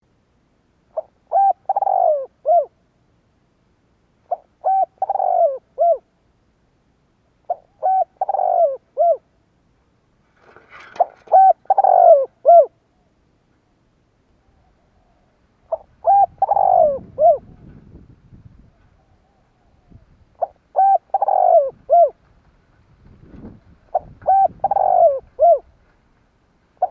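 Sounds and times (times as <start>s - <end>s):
dove cooing: 0.9s - 2.8s, 4.3s - 6.1s, 7.4s - 9.3s, 10.8s - 13.0s, 14.4s - 17.8s, 18.7s - 22.2s, 23.4s - 25.8s
faint rustle: 9.7s - 11.8s, 21.6s - 26.9s.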